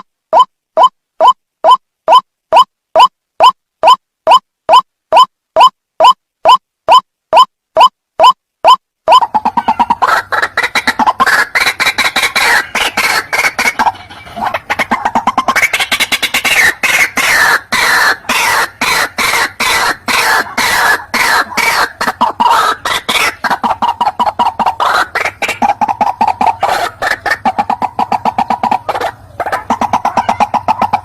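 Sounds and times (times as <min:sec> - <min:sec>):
waterhen harsh repeated calls: 0:00.0 - 0:31.0.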